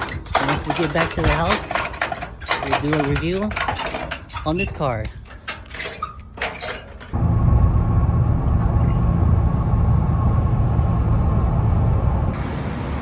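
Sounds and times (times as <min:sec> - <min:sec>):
clicks and knocks: 0:00.0 - 0:07.2
road noise: 0:00.0 - 0:13.0
pickup truck engine rumble: 0:05.2 - 0:13.0.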